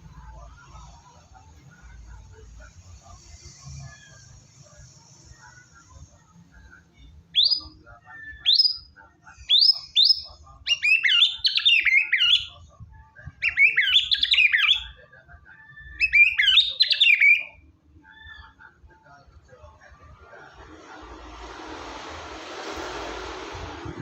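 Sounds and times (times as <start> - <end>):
shama whistled song: 7.4 - 8.9, 15.9 - 17.6.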